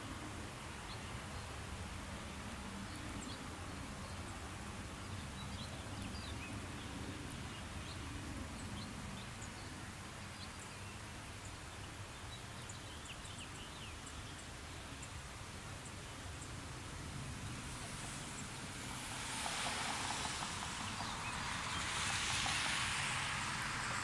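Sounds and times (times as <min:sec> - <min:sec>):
light rain: 0:00.0 - 0:24.0.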